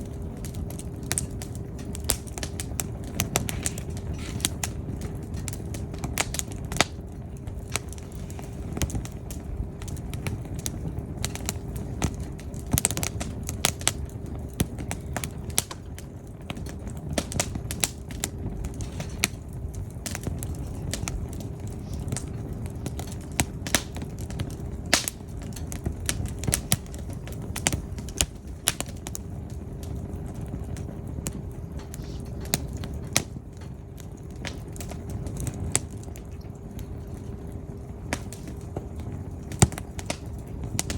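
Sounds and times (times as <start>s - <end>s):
firewood crackling and popping: 0.0s - 40.9s
low rumble of fire: 0.0s - 40.9s.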